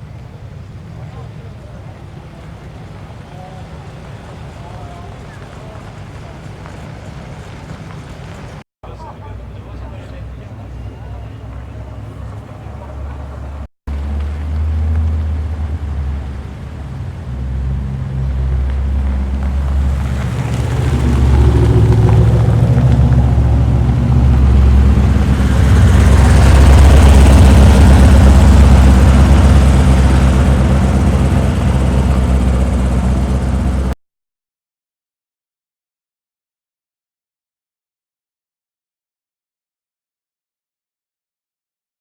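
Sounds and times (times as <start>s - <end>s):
car engine running: 9.4s - 34.0s.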